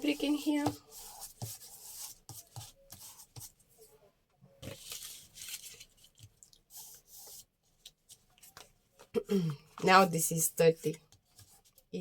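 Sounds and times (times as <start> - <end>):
paper rustling and crinkling: 4.6 - 9.0.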